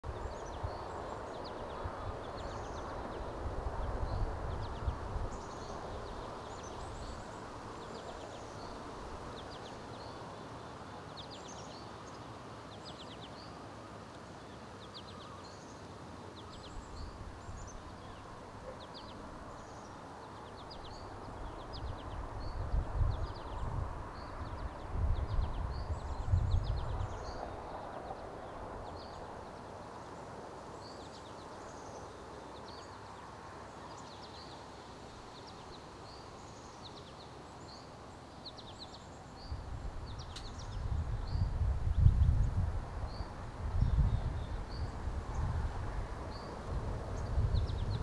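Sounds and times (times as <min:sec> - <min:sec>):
wind rumble on microphone: 0:00.0 - 0:10.2, 0:20.6 - 0:29.6, 0:39.4 - 0:48.0
outdoor ambient hiss: 0:00.0 - 0:48.0
songbirds chirping and singing: 0:00.0 - 0:48.0.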